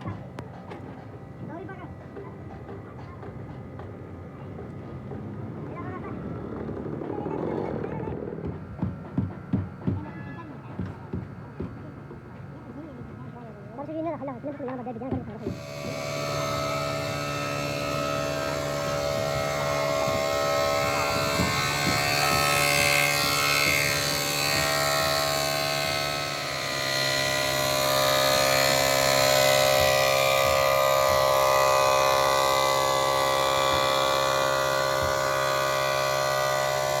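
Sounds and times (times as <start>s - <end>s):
machine humming: 15.4s - 37.0s.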